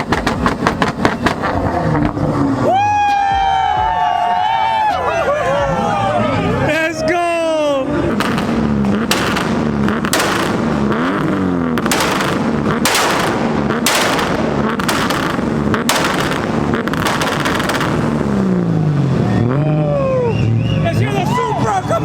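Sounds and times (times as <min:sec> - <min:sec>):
loud exhaust bangs: 0:00.0 - 0:03.7, 0:08.0 - 0:20.9
car engine revving: 0:00.0 - 0:04.2, 0:05.1 - 0:22.0.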